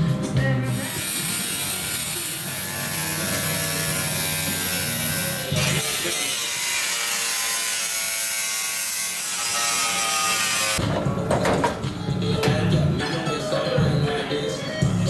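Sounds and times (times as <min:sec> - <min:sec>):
power tool cutting sheet metal: 0:00.7 - 0:10.8
knocks and clatter: 0:10.8 - 0:12.8.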